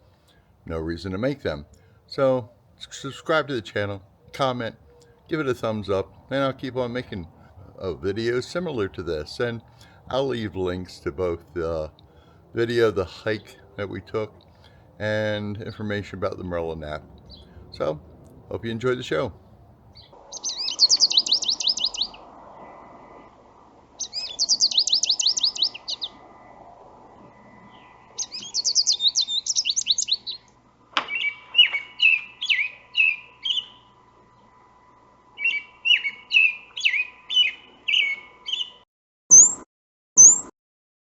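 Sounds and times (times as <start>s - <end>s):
songbird trilling and warbling: 17.0s - 17.9s, 19.9s - 22.2s, 24.0s - 26.2s, 27.7s - 30.5s, 31.1s - 33.9s, 35.4s - 39.6s.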